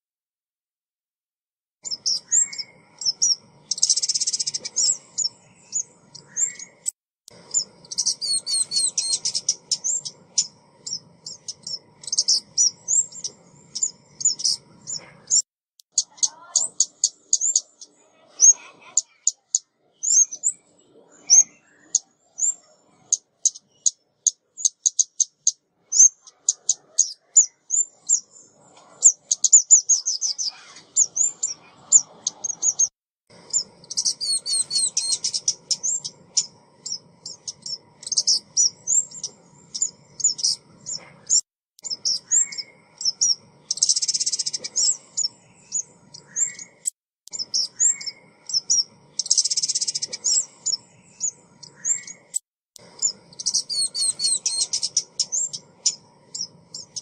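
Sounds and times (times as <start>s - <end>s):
songbird chirps and trills: 1.8s - 57.0s.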